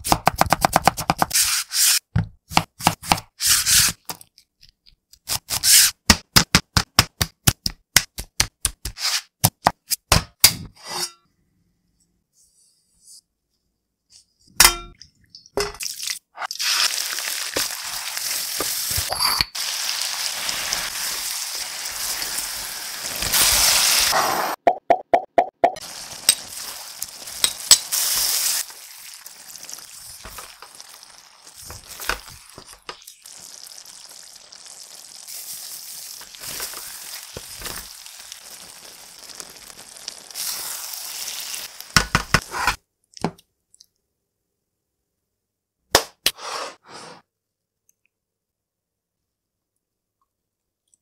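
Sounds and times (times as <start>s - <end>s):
meat sizzling in a pan: 16.6s - 24.2s, 25.8s - 42.3s.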